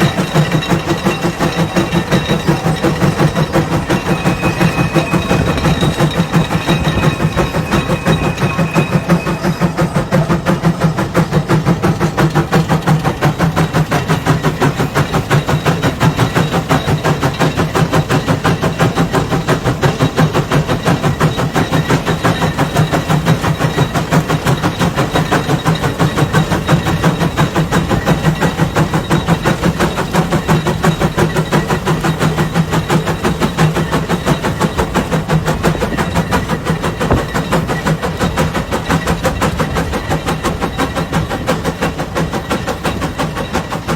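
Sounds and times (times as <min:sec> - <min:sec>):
steam engine exhaust chuffing: 0:00.0 - 0:43.9.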